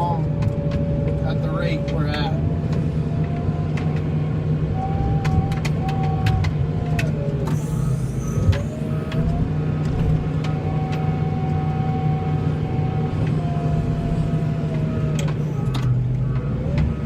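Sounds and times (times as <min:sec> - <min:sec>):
vehicle engine whining: 0:00.0 - 0:17.0.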